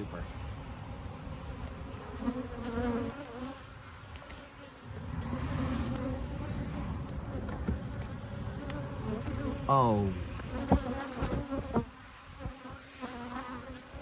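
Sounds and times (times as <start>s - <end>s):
bees buzzing: 0.0s - 14.0s.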